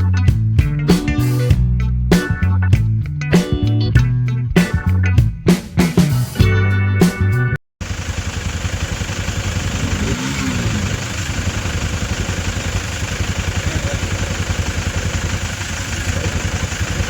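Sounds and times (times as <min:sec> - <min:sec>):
motorcycle engine running: 0:07.8 - 0:17.0.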